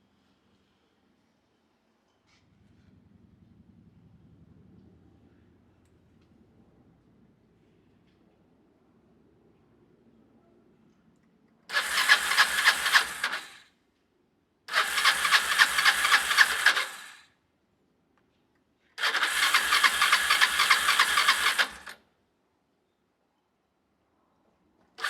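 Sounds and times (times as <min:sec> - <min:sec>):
electric starter cranking engine: 0:11.7 - 0:13.6, 0:14.7 - 0:17.2, 0:19.0 - 0:22.0.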